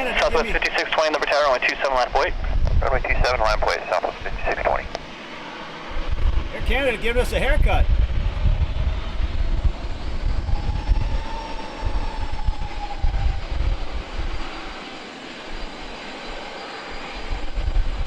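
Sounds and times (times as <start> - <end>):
low rumble: 0.0 - 5.0, 5.6 - 14.8
airliner engine whine: 0.0 - 18.0.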